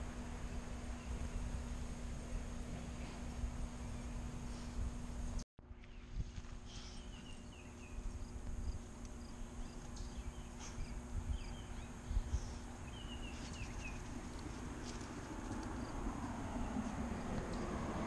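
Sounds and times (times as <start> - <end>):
passing vehicle: 13.8 - 18.0.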